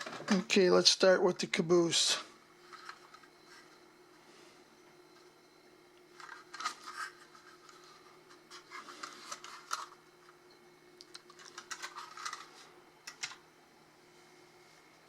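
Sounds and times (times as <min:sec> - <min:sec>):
cardboard and wrapping rustling: 0:06.2 - 0:10.0.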